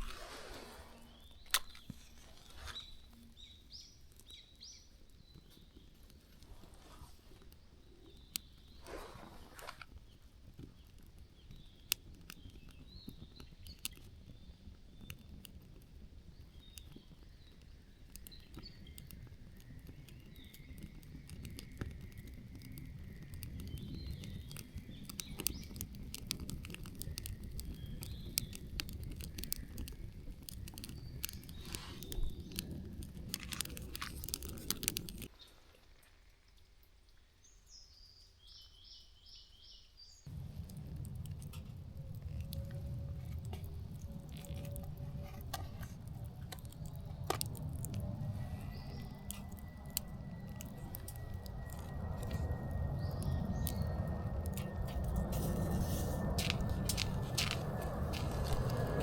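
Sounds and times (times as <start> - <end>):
sharp clicks and crackles: 0.0 - 35.3, 40.3 - 59.0
low outdoor rumble: 40.3 - 59.0
birds chirping: 43.7 - 59.0.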